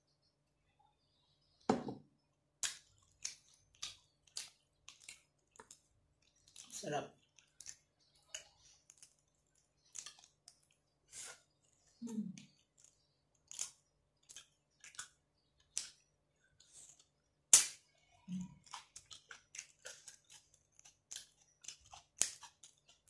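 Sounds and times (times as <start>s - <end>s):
chewing and lip smacks: 2.6s - 17.2s, 17.8s - 23.0s.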